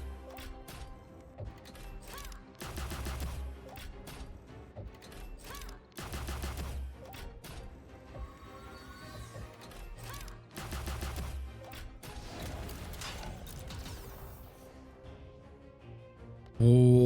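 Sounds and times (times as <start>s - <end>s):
slot game music: 0.0s - 17.0s
booming rapid shot-like hits: 10.6s - 11.4s.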